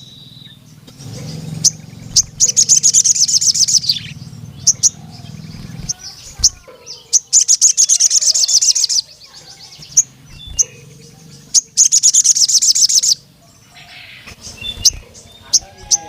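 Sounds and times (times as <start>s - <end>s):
bird singing high trills: 0.0s - 16.0s.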